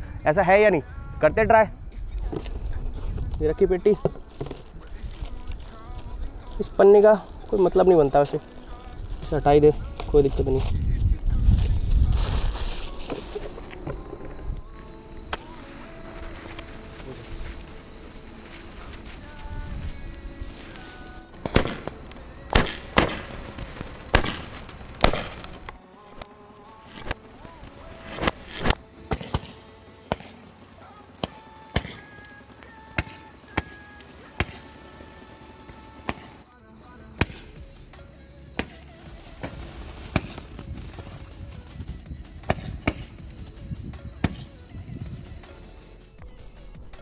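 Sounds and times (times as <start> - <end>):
firework crackling fizz: 2.2 - 47.0
firework shells popping: 2.3 - 26.3, 26.9 - 36.5, 37.2 - 44.6
firework launch pops: 18.5 - 25.8, 28.0 - 30.4, 31.2 - 32.0, 38.6 - 40.7, 42.4 - 43.2.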